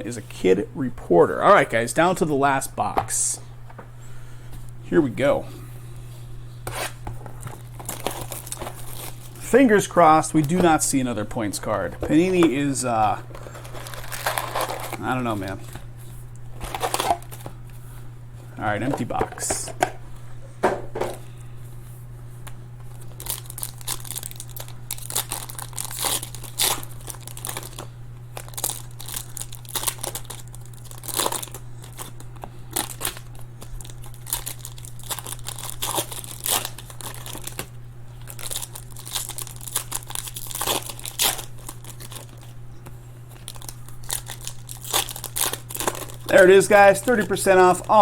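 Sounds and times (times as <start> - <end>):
steady low hum: 0.0 - 48.0
card pack wrappers crinkling and tearing: 7.4 - 15.8, 16.5 - 17.5, 22.9 - 48.0.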